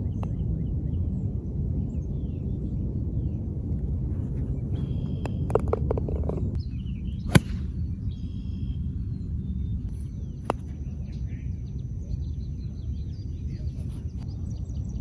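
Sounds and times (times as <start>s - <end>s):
low outdoor rumble: 0.0s - 15.0s
birds chirping: 1.9s - 15.0s
golf club striking ball: 4.7s - 6.6s, 7.2s - 8.4s.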